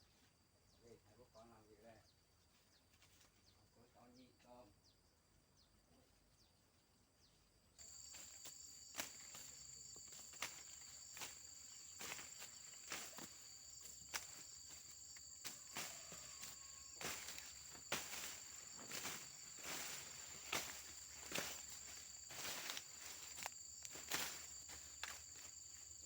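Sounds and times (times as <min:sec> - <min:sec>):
insects chirping: 0:00.0 - 0:26.0
dry rustling crunches: 0:07.8 - 0:26.0.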